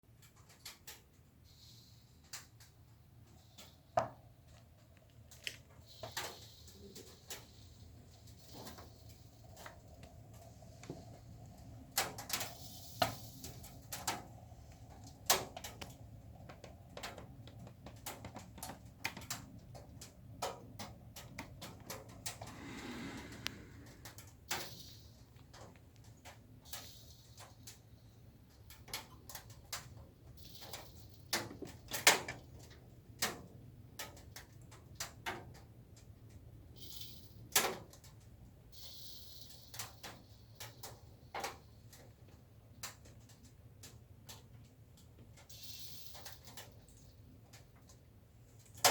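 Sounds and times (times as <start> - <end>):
soft hiss: 0.2 - 32.8, 36.0 - 48.9
low steady hum: 1.2 - 34.0.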